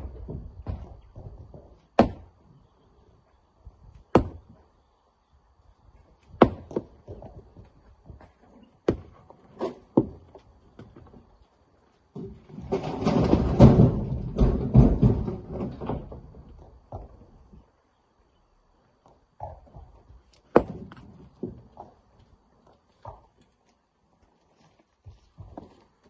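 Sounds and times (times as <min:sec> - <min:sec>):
rock being struck: 0:04.1 - 0:04.6.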